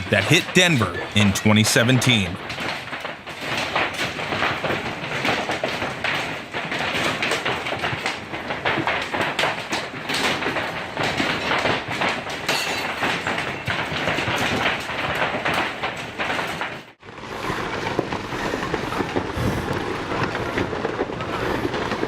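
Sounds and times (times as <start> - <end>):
hailstones clattering on hard surfaces: 0.0 - 22.0
dense rumbling noise: 17.0 - 22.0.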